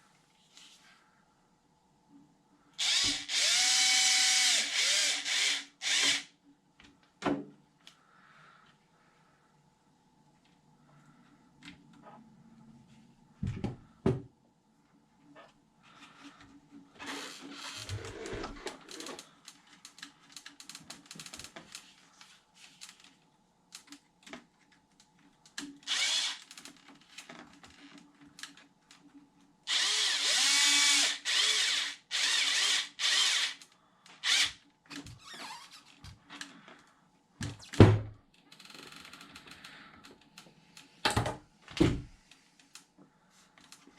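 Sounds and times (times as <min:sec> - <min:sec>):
cordless drill whirring: 0:02.8 - 0:06.3, 0:25.9 - 0:26.5, 0:29.7 - 0:33.6, 0:34.2 - 0:34.6.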